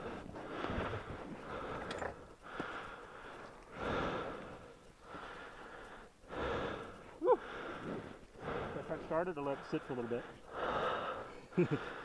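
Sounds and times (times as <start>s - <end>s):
person breathing hard: 0.0s - 12.0s
person grunting: 7.2s - 7.5s.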